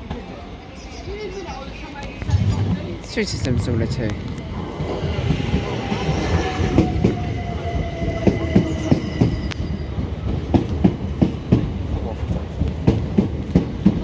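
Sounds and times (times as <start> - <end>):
train rumble: 1.2 - 14.0
train wheels clacking over rail joints: 8.0 - 14.0.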